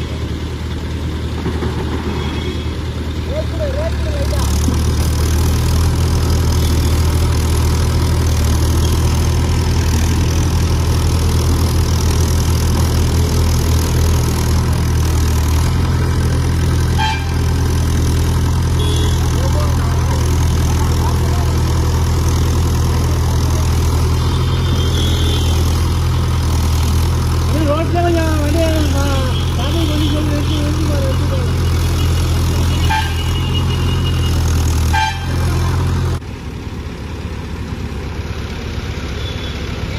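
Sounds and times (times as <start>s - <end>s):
heavy vehicle engine idling: 0.0s - 39.9s.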